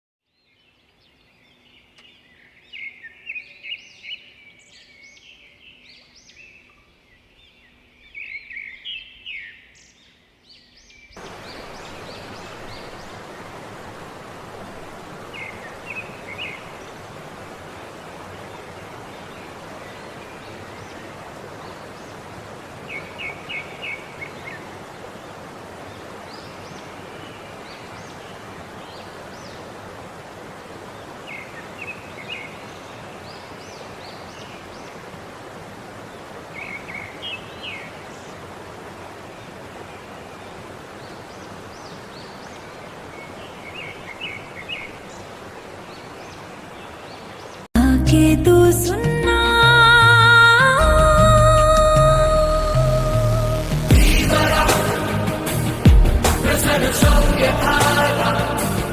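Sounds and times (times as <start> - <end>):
waterfall rushing: 11.2 - 58.9.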